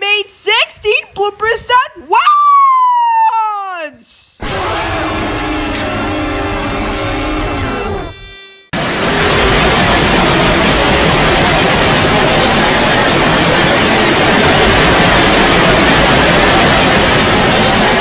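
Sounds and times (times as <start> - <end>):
dense layered noise: 8.8 - 18.0.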